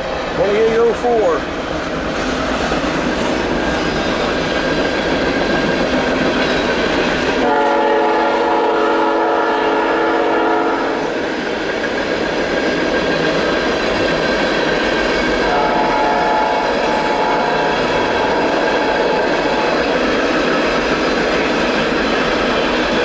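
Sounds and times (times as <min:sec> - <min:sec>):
freight train rolling past: 0:00.0 - 0:23.0
locomotive horn chord: 0:07.4 - 0:11.0, 0:15.4 - 0:19.1.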